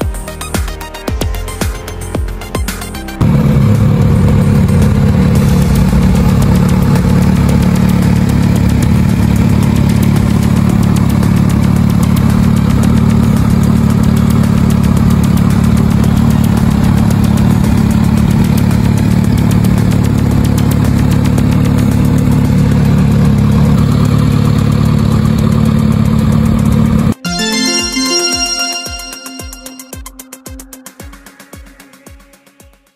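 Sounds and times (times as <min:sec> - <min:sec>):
motorcycle engine idling: 0:03.2 - 0:27.0.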